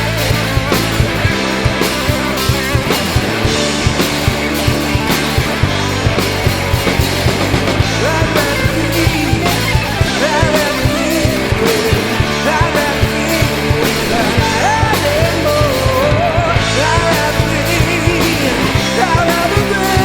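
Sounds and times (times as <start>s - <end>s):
drum kit beat: 0.0s - 20.0s
electric guitars: 0.0s - 20.0s
lead vocal singing: 7.8s - 20.0s.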